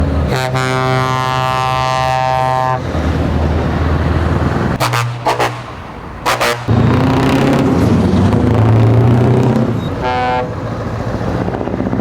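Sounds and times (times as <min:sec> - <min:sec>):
heavy truck engine running: 0:00.0 - 0:12.0
truck horn blast: 0:00.3 - 0:02.8, 0:04.8 - 0:07.6, 0:09.6 - 0:10.6.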